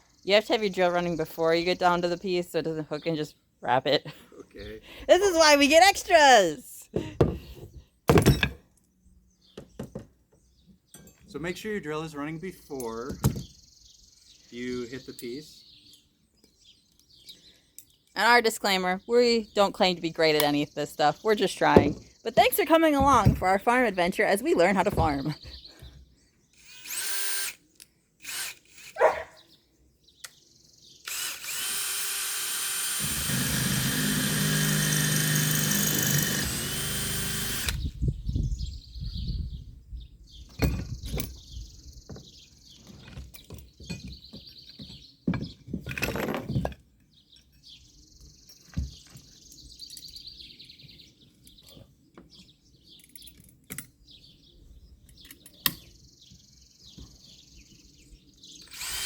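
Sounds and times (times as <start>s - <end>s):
power drill drilling metal: 26.6s - 27.6s, 28.2s - 29.0s, 31.0s - 37.9s, 58.6s - 59.0s.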